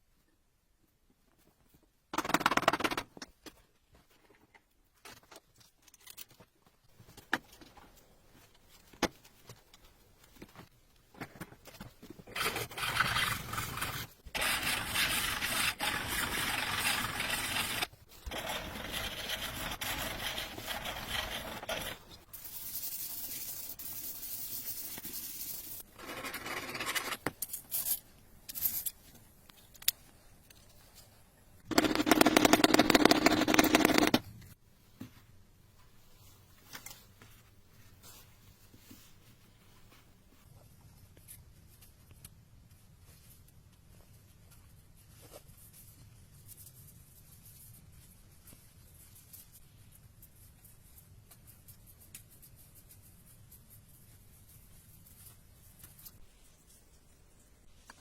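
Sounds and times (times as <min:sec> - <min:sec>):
blade rasping scrape: 0:12.3 - 0:22.1.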